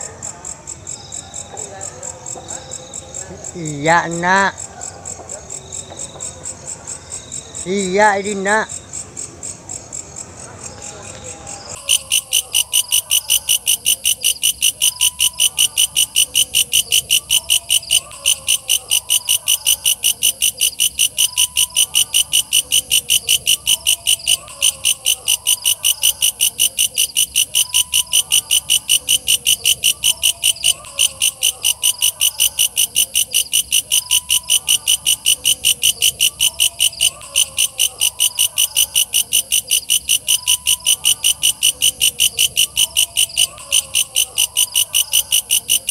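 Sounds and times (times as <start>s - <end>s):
grasshopper buzzy chirps: 11.6s - 45.9s.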